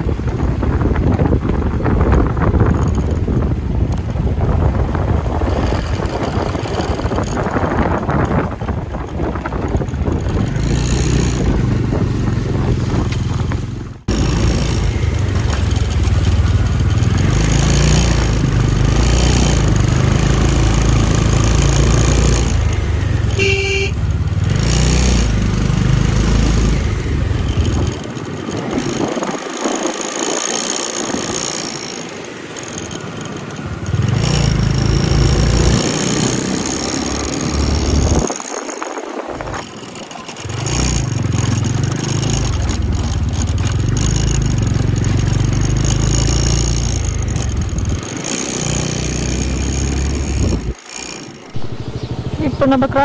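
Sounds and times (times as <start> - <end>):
wind noise on microphone: 0.0 - 32.0, 33.7 - 50.8, 51.5 - 53.0
motorcycle engine rumble: 0.0 - 53.0
horn beep: 23.4 - 24.0, 51.6 - 53.0.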